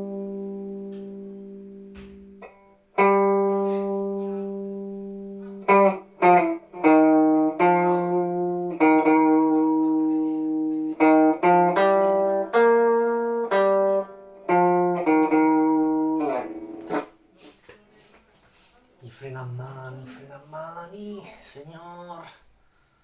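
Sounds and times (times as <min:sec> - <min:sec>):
plucked string instrument melody: 0:00.0 - 0:17.6.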